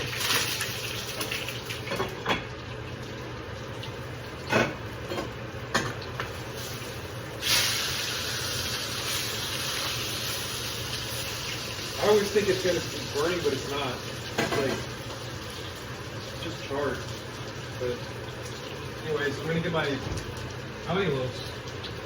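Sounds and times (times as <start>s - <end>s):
steak sizzling in a hot pan: 6.1s - 17.0s.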